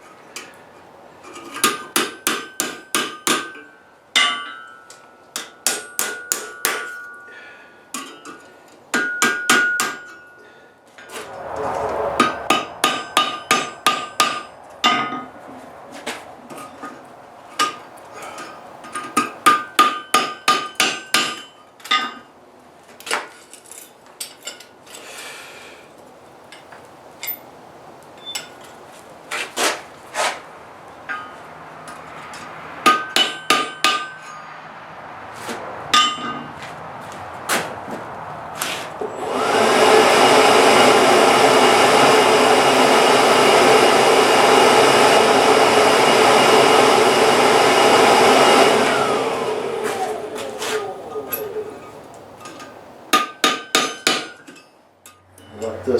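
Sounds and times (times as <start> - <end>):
hammer striking steel on anvil: 5.4 - 7.1, 32.9 - 34.4, 53.1 - 54.5
forge blower rushing air: 11.1 - 15.4, 39.2 - 53.1.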